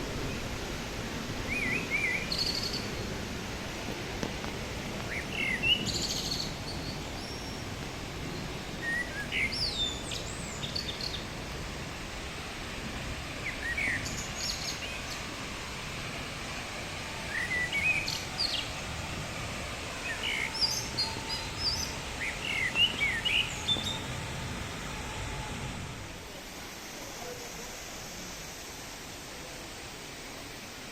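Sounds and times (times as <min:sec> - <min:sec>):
waterfall rushing: 0:00.0 - 0:30.9
small birds chirping: 0:04.9 - 0:07.7, 0:08.3 - 0:11.4.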